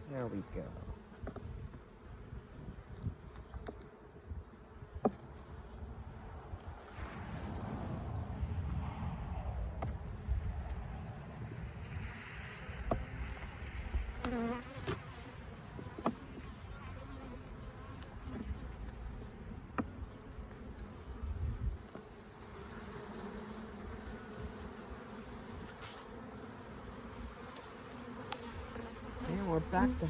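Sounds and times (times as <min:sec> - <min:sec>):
low rumble: 0:06.9 - 0:13.8
honeybees buzzing: 0:09.8 - 0:30.0.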